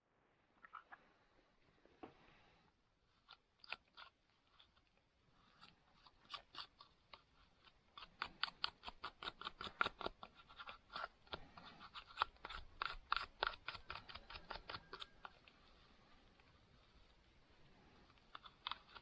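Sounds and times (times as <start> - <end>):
metal file scraping saw teeth: 5.5 - 15.4.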